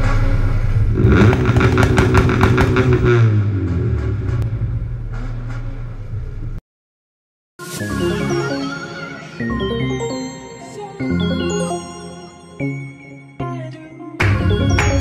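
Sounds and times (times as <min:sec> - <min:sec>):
car engine revving with crackle: 0:00.0 - 0:06.6
electronic music: 0:07.6 - 0:15.0.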